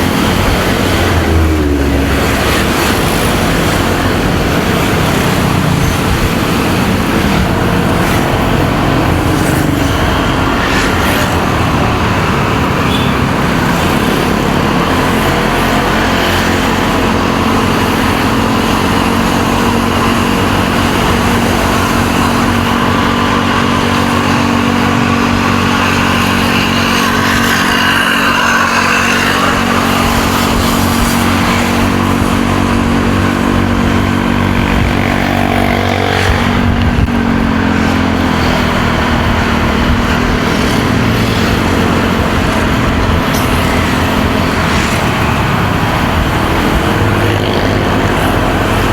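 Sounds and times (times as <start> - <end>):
motorcycle engine running: 0.0 - 48.9
traffic: 0.0 - 48.9
wind and road noise: 0.0 - 48.9.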